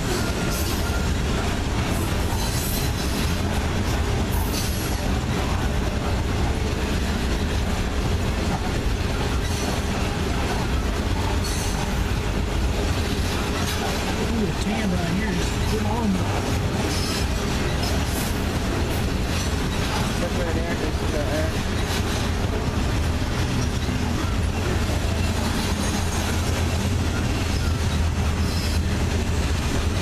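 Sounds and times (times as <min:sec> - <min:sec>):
train wheels rumbling on rails: 0:00.0 - 0:30.0
high wheel squeals: 0:09.3 - 0:09.8, 0:16.8 - 0:18.2, 0:23.6 - 0:29.0.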